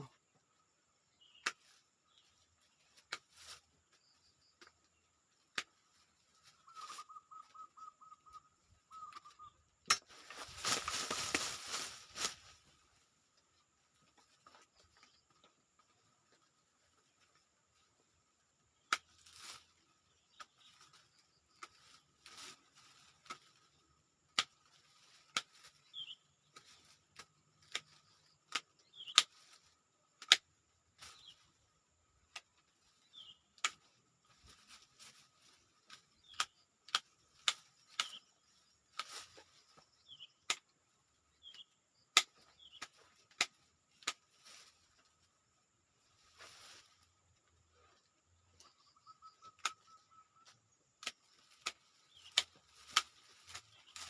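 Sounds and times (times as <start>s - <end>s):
woody branches snapping: 9.2s - 12.8s, 18.8s - 21.0s, 21.6s - 23.7s, 24.3s - 31.5s, 32.2s - 35.2s, 35.8s - 38.3s, 38.9s - 39.7s, 41.5s - 44.7s, 51.0s - 54.0s.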